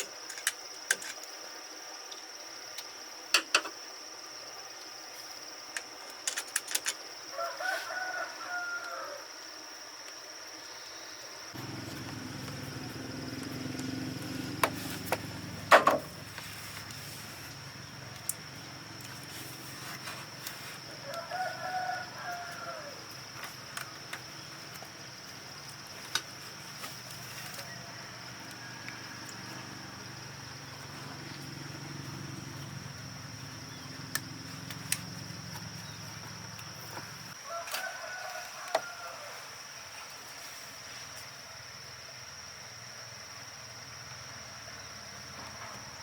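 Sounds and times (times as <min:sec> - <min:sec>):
high-pitched insect whine: 0:00.0 - 0:46.0
rooster crowing: 0:07.3 - 0:09.3, 0:21.0 - 0:23.2, 0:27.4 - 0:30.1, 0:37.3 - 0:39.5
low hum: 0:11.6 - 0:19.9.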